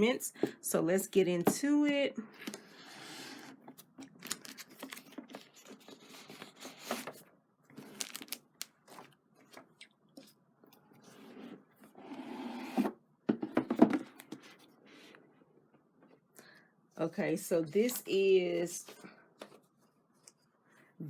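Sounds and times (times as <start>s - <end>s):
paper rustling and crackling: 3.7s - 10.3s.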